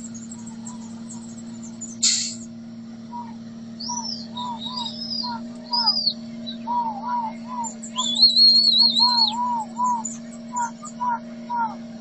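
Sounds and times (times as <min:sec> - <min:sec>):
low hum: 0:00.0 - 0:12.0
bird-like whistled chirping: 0:03.1 - 0:11.8.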